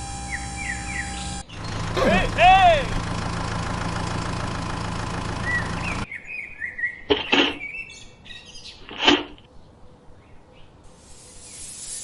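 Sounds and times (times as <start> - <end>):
birds chirping: 0.3 - 3.0, 5.3 - 11.6.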